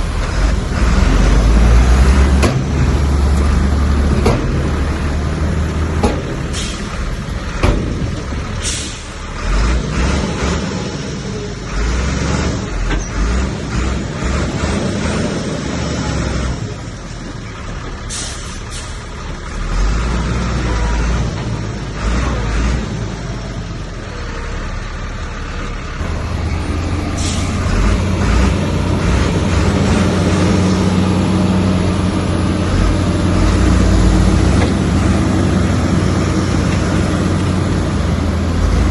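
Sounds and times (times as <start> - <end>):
heavy diesel engines working: 0.0 - 38.9.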